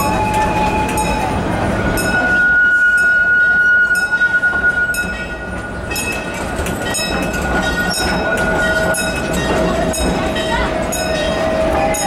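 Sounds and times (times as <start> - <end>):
train cars rumbling on track: 0.0 - 12.0
wheels clicking and rattling: 5.0 - 12.0.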